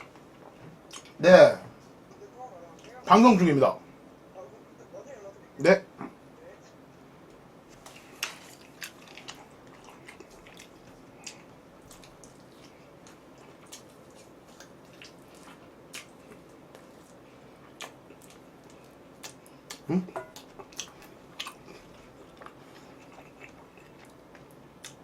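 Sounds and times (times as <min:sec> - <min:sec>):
person chewing fried chicken: 0:07.8 - 0:25.0.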